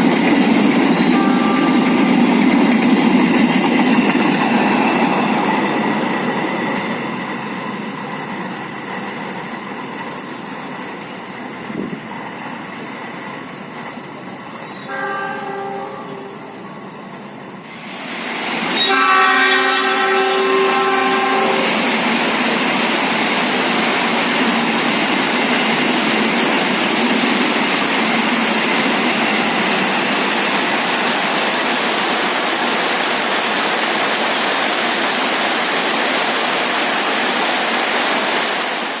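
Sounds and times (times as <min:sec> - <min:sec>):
train passing: 0:00.0 - 0:39.0
locomotive horn: 0:01.0 - 0:02.0, 0:14.8 - 0:16.7, 0:18.7 - 0:21.8.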